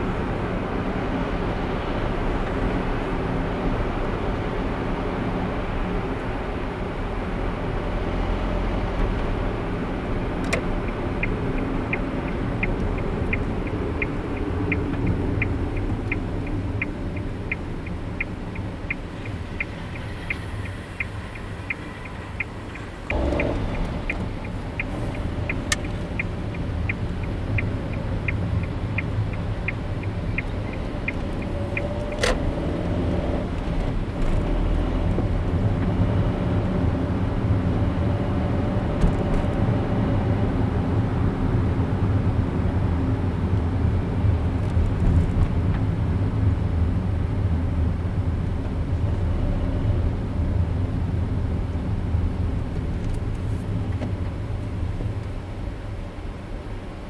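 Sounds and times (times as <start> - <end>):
engine and road rumble: 0.0 - 57.0
turn signal ticking: 7.3 - 55.8
sharp clicks: 23.1 - 32.5.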